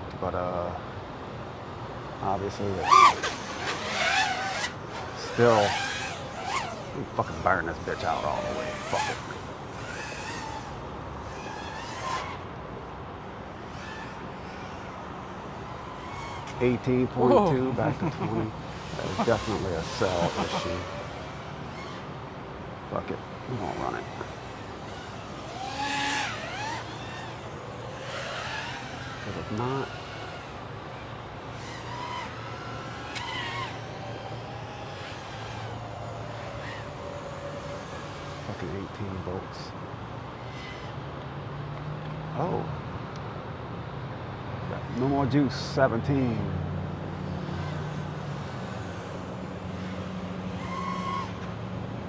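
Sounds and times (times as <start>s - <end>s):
steady low hum: 0.8s - 41.0s
quadcopter motor whine: 2.3s - 42.6s, 46.2s - 52.0s.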